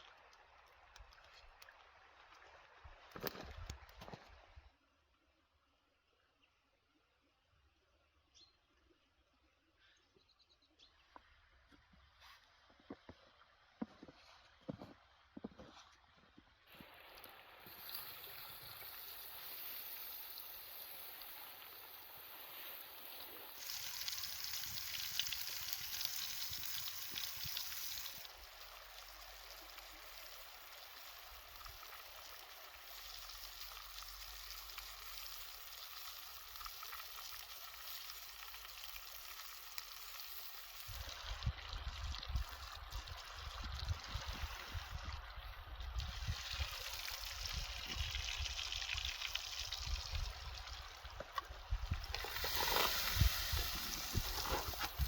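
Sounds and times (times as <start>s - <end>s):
running water rushing: 16.7s - 41.5s, 42.3s - 55.0s.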